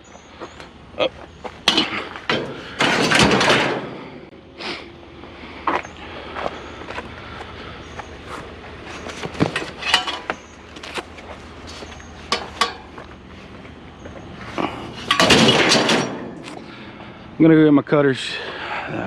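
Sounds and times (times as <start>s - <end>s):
scrap metal knocks and clanks: 1.6s - 4.3s, 8.9s - 13.1s, 14.4s - 16.8s.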